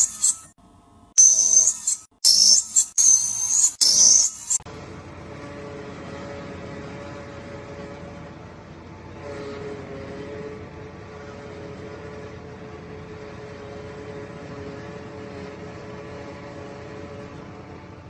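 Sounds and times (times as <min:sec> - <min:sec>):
machine running with low rumble: 0:04.4 - 0:18.0.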